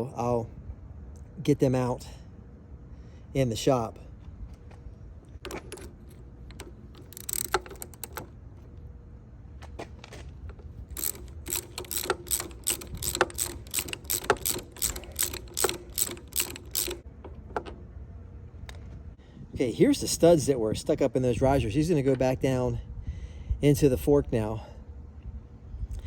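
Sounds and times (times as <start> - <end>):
socket ratchet clicking: 5.4 - 8.4, 10.9 - 17.8.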